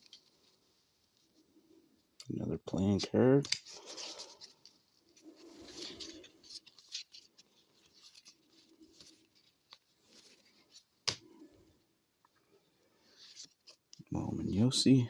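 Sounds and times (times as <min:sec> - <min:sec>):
cards rubbing and shuffling: 0:02.7 - 0:11.4.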